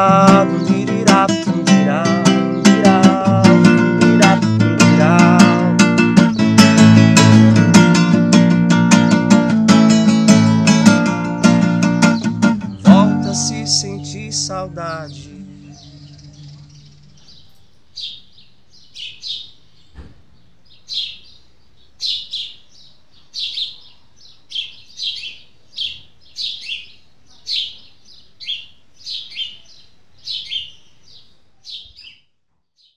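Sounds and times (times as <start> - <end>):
guitar note: 0.0 - 16.7
birds chirping: 0.0 - 32.9.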